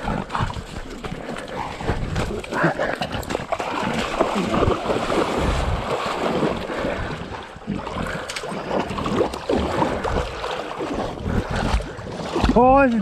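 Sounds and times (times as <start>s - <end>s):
water sloshing as people wade: 0.0s - 13.0s
wind on microphone: 3.2s - 12.5s.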